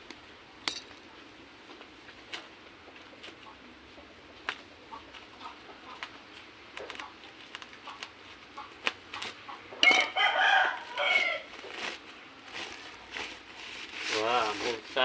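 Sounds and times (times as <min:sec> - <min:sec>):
rooster crowing: 0:09.8 - 0:11.6.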